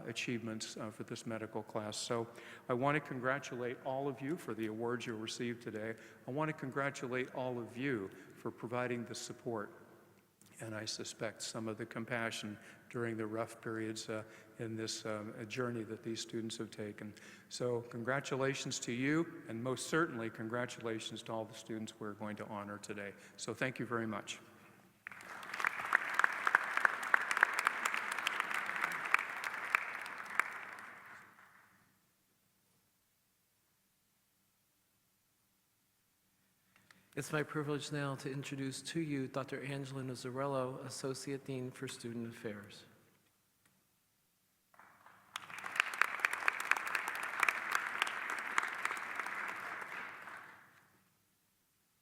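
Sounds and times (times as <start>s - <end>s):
audience applauding: 25.0s - 31.6s, 44.8s - 50.7s.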